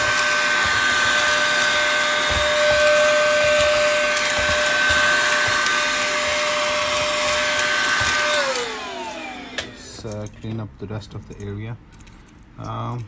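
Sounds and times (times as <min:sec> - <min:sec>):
small vacuum cleaner whining: 0:00.0 - 0:10.2.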